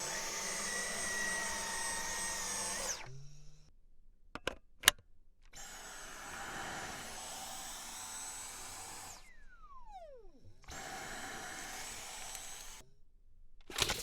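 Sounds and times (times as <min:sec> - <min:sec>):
vacuum motor whining: 0:00.0 - 0:03.7, 0:05.6 - 0:12.8.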